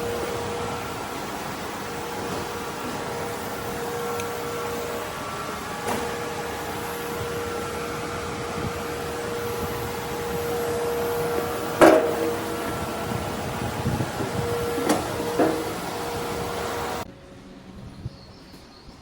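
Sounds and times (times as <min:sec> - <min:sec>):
machine hum: 0:00.0 - 0:17.1
ringing metal clank: 0:09.1 - 0:16.4.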